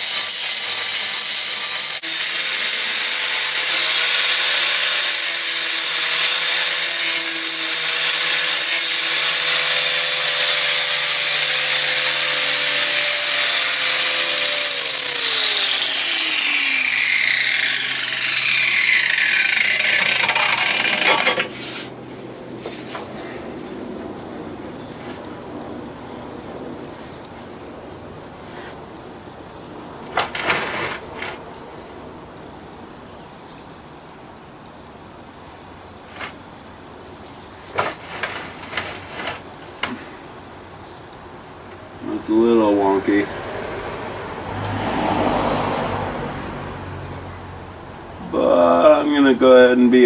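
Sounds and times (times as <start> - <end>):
angle grinder on steel: 0.0 - 21.9, 30.2 - 31.4, 37.8 - 40.0.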